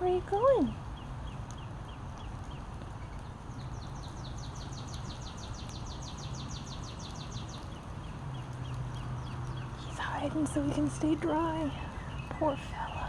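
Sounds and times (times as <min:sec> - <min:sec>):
steady rain: 0:00.0 - 0:13.0
slow repeated bird chirp: 0:00.1 - 0:13.0
bird singing rapid trill: 0:00.6 - 0:13.0.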